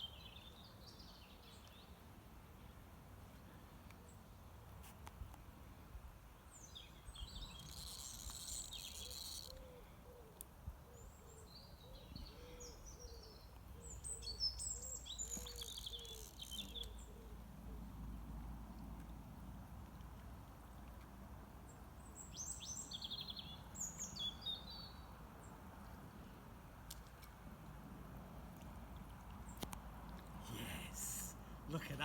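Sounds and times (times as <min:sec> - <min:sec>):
birds chirping song: 0:00.0 - 0:02.0, 0:06.4 - 0:10.3, 0:10.9 - 0:17.4, 0:22.0 - 0:25.2.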